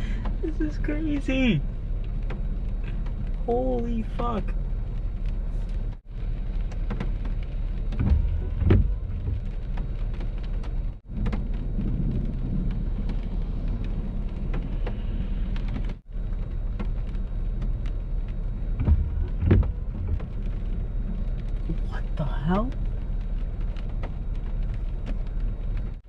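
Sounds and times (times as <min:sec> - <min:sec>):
heavy rain pattering on car: 0:00.0 - 0:26.0
low rumbles: 0:00.0 - 0:26.0.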